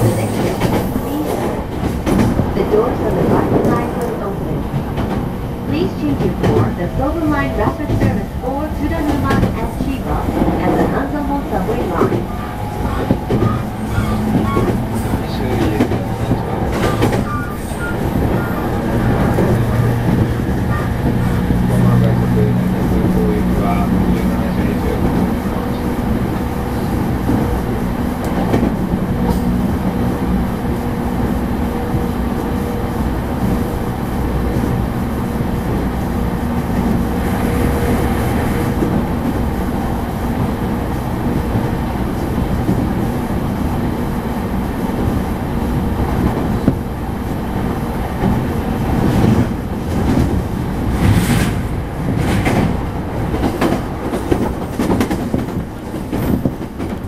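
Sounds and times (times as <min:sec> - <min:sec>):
steady train hum: 0:00.0 - 0:57.0
train wheels rumbling on rail: 0:00.0 - 0:57.0
wheels clacking over rail joints: 0:05.9 - 0:29.6.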